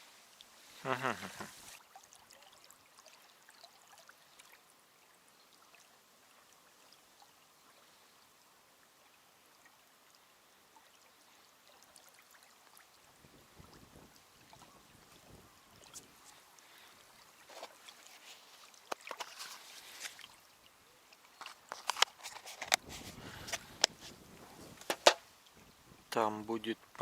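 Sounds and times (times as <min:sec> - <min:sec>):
faint background hiss: 0:00.0 - 0:27.0
soft rustling: 0:14.6 - 0:20.5, 0:21.3 - 0:25.7.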